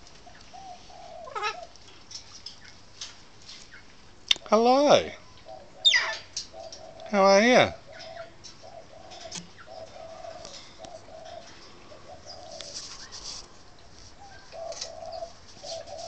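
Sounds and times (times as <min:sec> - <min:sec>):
bird cooing: 0:00.0 - 0:01.8, 0:05.2 - 0:16.0.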